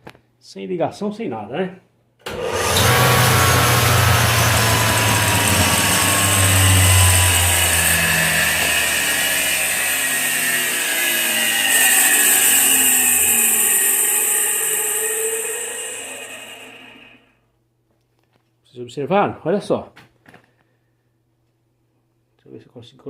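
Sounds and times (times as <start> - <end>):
alternator whirring and whining: 2.3 - 17.2.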